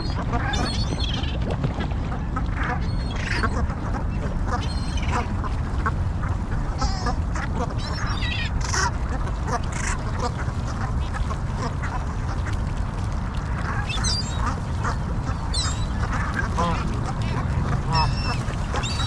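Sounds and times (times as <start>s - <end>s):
waterfowl quacking and honking: 0.0s - 12.6s, 13.6s - 19.0s
steady low rumble: 0.0s - 13.8s, 14.4s - 19.0s.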